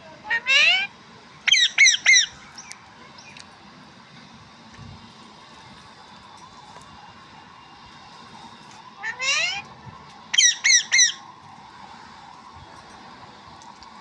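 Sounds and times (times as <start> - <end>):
parrot squawking: 0.3 - 0.9, 1.5 - 2.4, 9.0 - 9.6, 10.3 - 11.2.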